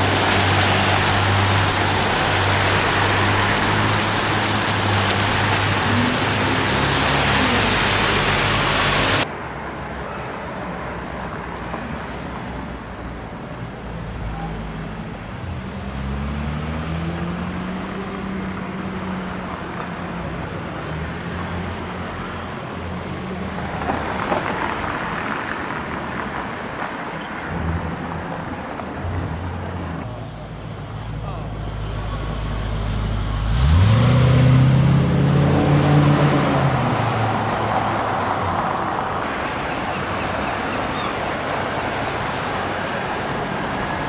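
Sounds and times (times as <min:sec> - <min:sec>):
car accelerating: 0:00.0 - 0:09.2, 0:22.9 - 0:30.1, 0:31.8 - 0:44.0
vehicle passing: 0:00.0 - 0:09.2, 0:23.3 - 0:30.1
loud rushing noise: 0:24.5 - 0:30.1.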